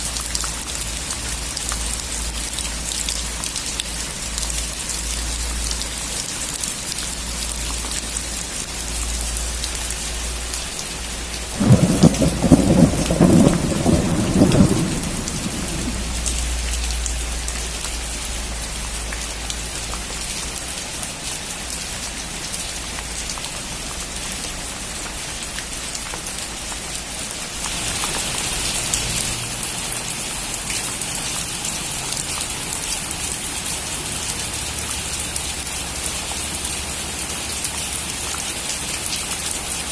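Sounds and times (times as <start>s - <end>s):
rain falling: 0.0s - 39.9s
thunderclap: 11.6s - 16.7s.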